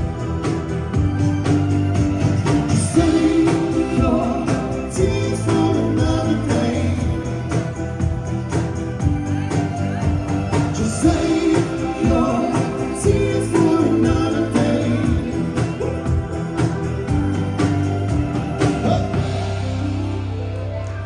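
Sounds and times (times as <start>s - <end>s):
live band playing pop song: 0.0s - 21.0s
person singing: 2.7s - 8.4s, 9.4s - 17.6s.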